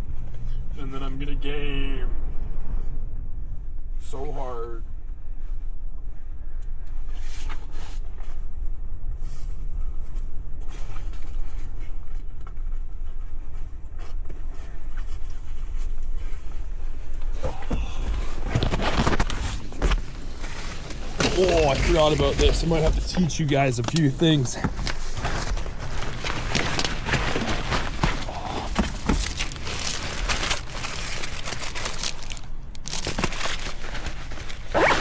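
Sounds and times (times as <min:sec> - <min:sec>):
camera handling rustle: 0:18.3 - 0:31.7.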